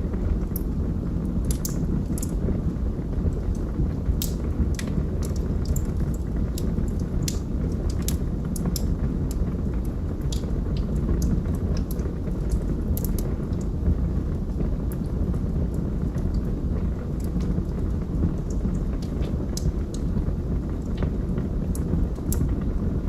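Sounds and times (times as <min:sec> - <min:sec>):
log fire crackling: 0:00.0 - 0:23.0.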